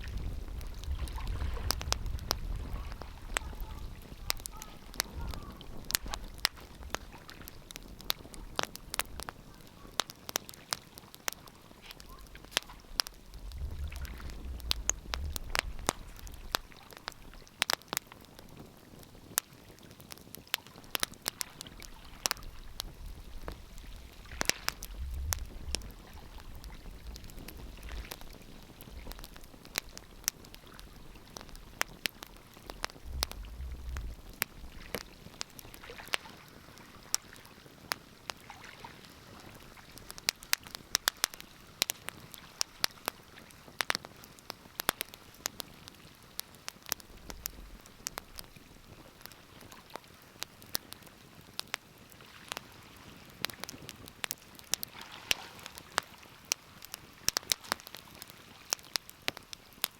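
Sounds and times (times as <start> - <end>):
wood fire crackling: 0.0 - 59.9
low rumble: 13.0 - 16.6, 24.8 - 28.0, 32.7 - 35.0.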